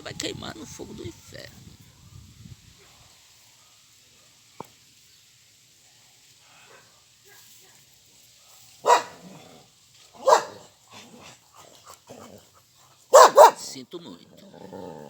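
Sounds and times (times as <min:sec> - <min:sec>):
dog barking: 0:08.8 - 0:09.6, 0:10.2 - 0:12.3, 0:13.1 - 0:13.7.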